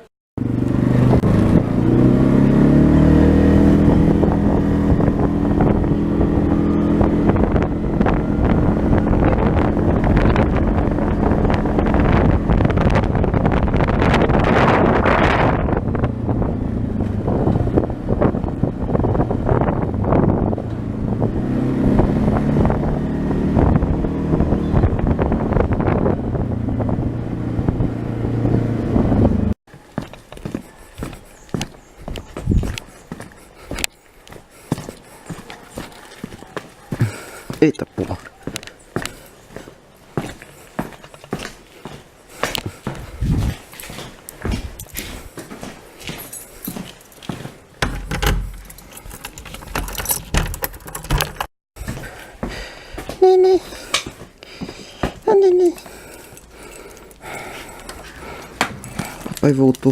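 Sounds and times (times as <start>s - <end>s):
motorcycle engine pulling away: 0.4s - 29.6s
wind buffeting microphone: 0.4s - 41.5s, 42.2s - 45.4s
light rattling: 46.1s - 51.5s.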